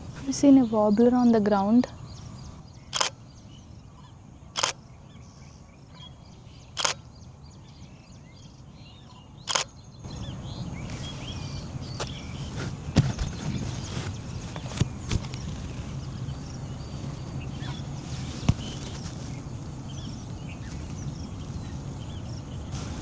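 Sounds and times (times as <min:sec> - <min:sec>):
small birds chirping: 0:00.0 - 0:23.0
sharp clicks: 0:02.9 - 0:03.2, 0:04.6 - 0:04.8, 0:06.8 - 0:07.0, 0:09.5 - 0:09.7
footsteps thumping: 0:12.0 - 0:15.6, 0:18.4 - 0:19.4.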